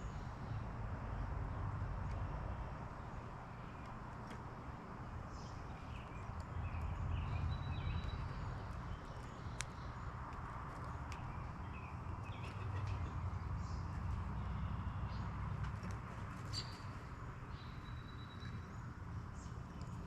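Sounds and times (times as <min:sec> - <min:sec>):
songbirds chirping: 0:00.0 - 0:20.0.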